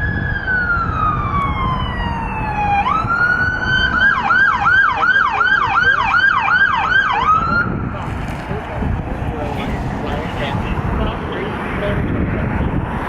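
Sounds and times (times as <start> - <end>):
emergency vehicle siren: 0.0 - 7.9
low rumble: 7.7 - 12.9.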